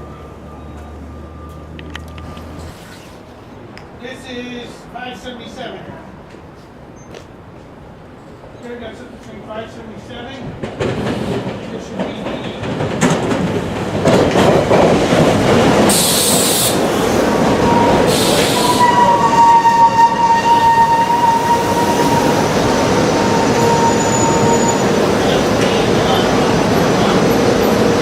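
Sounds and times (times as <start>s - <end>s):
train wheels rumbling on rail: 5.9s - 28.0s
air hisses: 15.9s - 16.8s, 18.0s - 19.0s
high-pitched wheel squeal: 17.6s - 25.4s.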